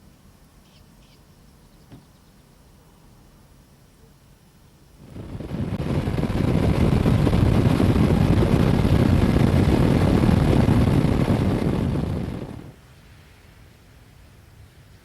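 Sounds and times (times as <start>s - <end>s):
wind rushing: 5.0s - 12.8s.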